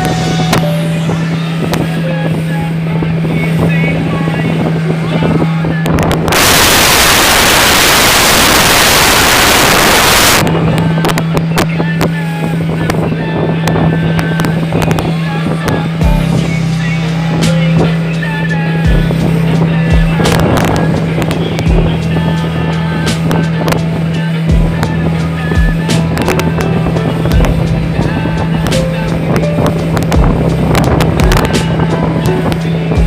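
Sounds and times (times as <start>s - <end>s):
motorboat engine humming: 0.0s - 33.0s
loud rushing noise: 6.0s - 11.7s.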